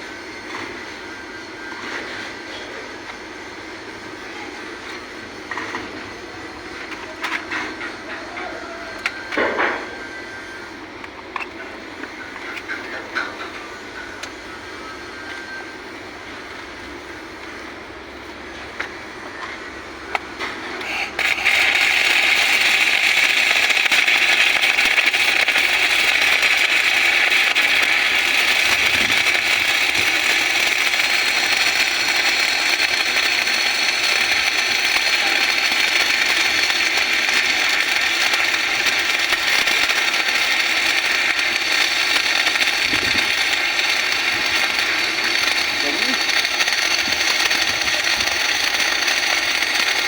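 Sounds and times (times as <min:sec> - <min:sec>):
welding arc crackling: 0:20.0 - 0:50.0.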